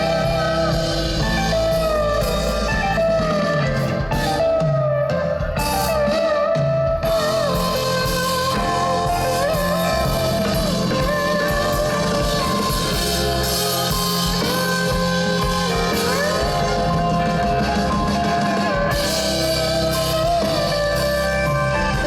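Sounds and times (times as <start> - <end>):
live band playing: 0.0 - 22.0
sliding guitar lead melody: 0.0 - 22.0.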